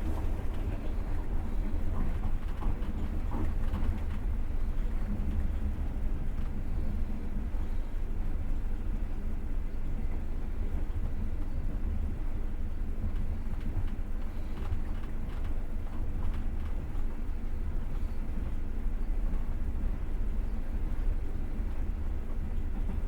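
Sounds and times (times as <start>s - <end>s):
train wheels rumbling on rails: 0.0s - 5.0s.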